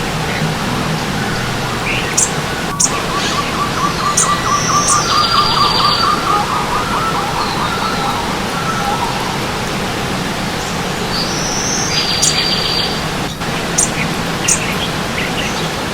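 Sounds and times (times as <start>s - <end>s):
buzzy bird trill: 0.0s - 15.7s
stream water running: 0.0s - 15.9s
high bird chirps: 0.3s - 9.7s, 10.6s - 13.0s, 13.6s - 15.7s.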